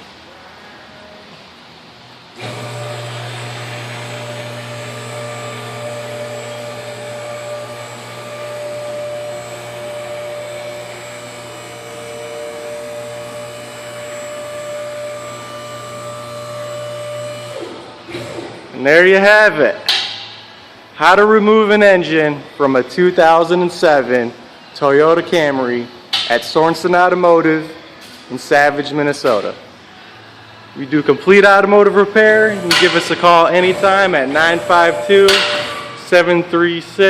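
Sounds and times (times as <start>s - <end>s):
lift electric motor humming: 2.3s - 18.6s, 30.2s - 37.0s.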